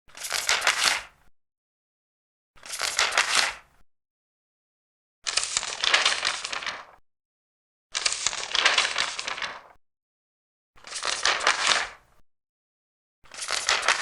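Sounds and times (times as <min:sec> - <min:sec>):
large paper pages turning: 0:00.1 - 0:01.1, 0:02.6 - 0:03.6, 0:05.3 - 0:07.0, 0:08.0 - 0:09.8, 0:10.8 - 0:12.0, 0:13.3 - 0:14.0.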